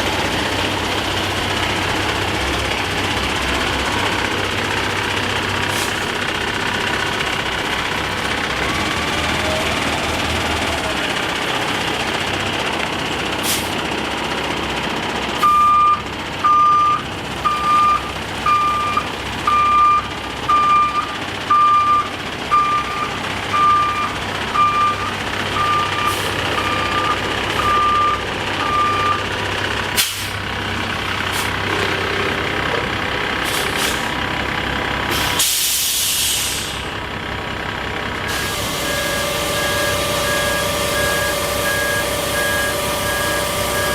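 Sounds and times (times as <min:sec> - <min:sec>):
diesel engine running: 0:00.0 - 0:43.9
truck backup alarm beeping: 0:01.6 - 0:11.0, 0:15.4 - 0:30.3, 0:38.3 - 0:43.9
air hiss: 0:35.2 - 0:36.8.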